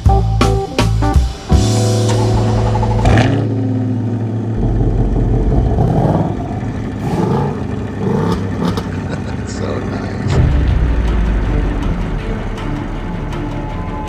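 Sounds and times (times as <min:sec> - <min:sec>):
music: 0:00.0 - 0:05.0, 0:09.9 - 0:14.0
car engine revving: 0:01.6 - 0:14.0.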